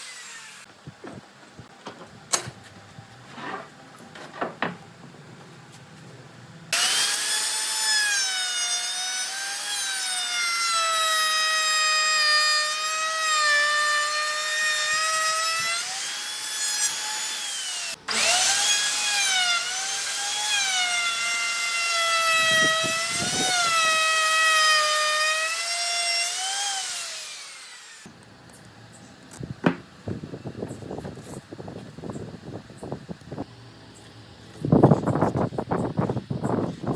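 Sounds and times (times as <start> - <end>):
power tool cutting wood: 0.0 - 0.7, 6.7 - 28.1.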